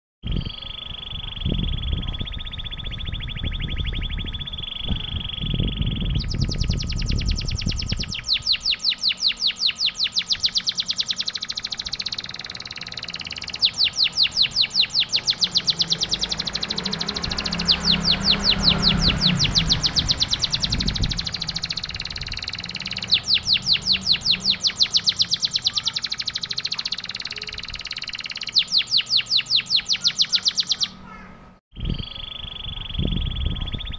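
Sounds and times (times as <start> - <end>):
canary singing: 0.2 - 33.9
low rumbling noise: 11.4 - 25.4.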